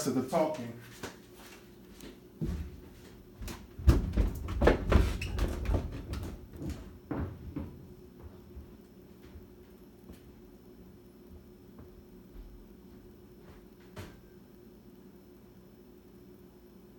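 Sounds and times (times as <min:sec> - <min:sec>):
faint steady hum: 0:00.0 - 0:16.9
irregular knocks and thumps: 0:03.4 - 0:09.5.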